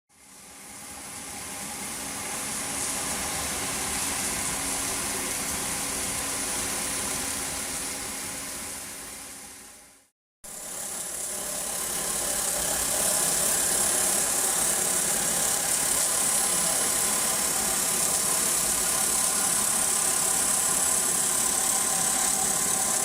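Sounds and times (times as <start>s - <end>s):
milling spindle cutting foam: 10.5s - 23.0s.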